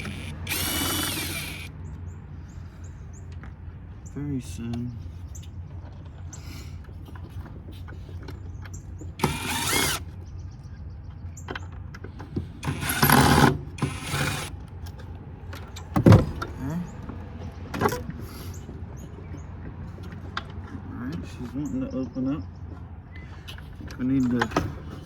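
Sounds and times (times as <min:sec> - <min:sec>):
cordless drill whining: 0:00.0 - 0:01.7, 0:09.2 - 0:10.1, 0:12.6 - 0:14.6.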